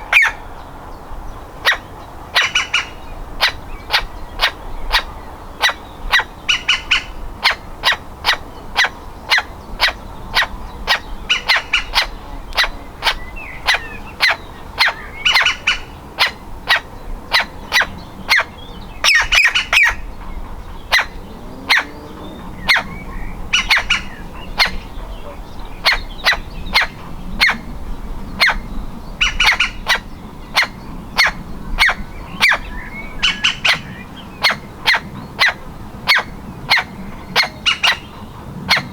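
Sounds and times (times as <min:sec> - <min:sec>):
woodpecker chick calling: 0:01.6 - 0:27.7.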